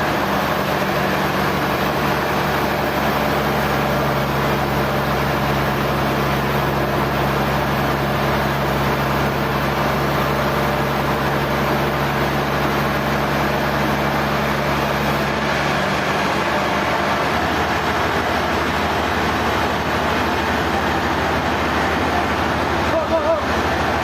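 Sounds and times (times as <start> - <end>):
low machine hum: 0.0 - 24.0
sawmill machinery running: 0.0 - 24.0.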